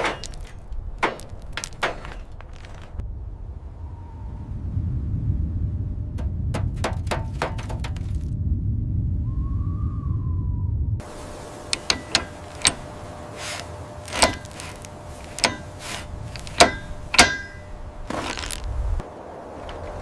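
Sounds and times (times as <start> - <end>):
metal parts clinking and knocking: 0.0 - 3.0, 11.7 - 12.9, 13.6 - 18.7
low rumble: 2.8 - 19.0.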